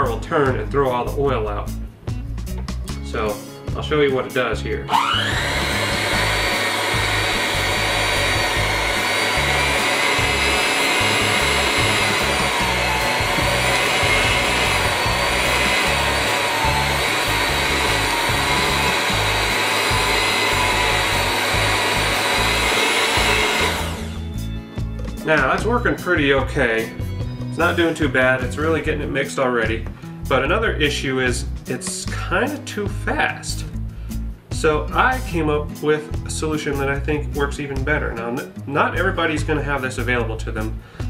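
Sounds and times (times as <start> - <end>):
electric hand mixer whining: 4.9 - 24.7.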